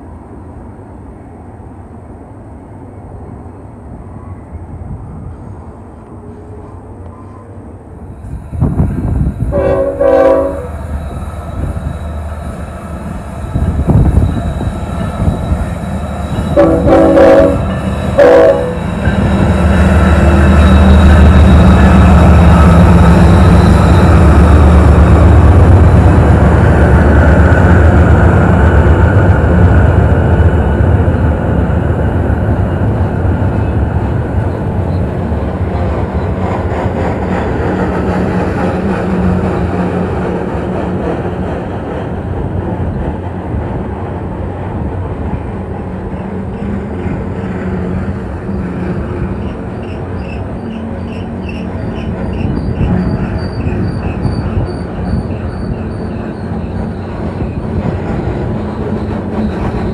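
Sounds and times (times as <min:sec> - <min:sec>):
train cars rumbling on rails: 0:00.0 - 0:59.9
locomotive engines humming: 0:02.8 - 0:59.9
high-pitched wheel squeak: 0:49.4 - 0:57.6.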